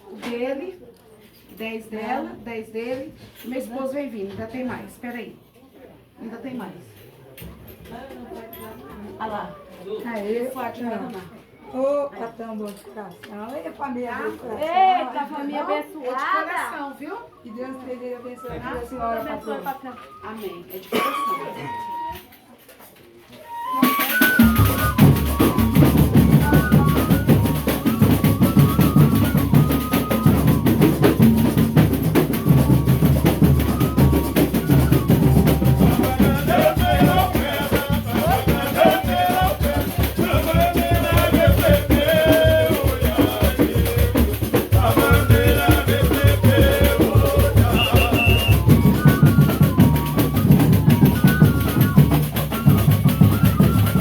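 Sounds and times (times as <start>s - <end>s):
melody instruments: 23.5s - 36.3s
driving drum beat: 23.8s - 54.0s.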